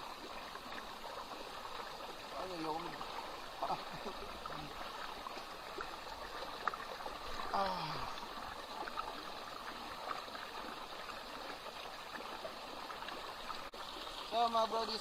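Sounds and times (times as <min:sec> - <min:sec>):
stream water rushing: 0:00.0 - 0:15.0
person calling out: 0:07.5 - 0:08.2.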